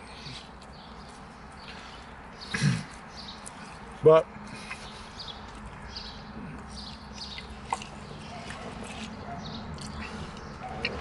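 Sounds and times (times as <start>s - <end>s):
wet chewing mouth clicks: 6.5s - 11.0s.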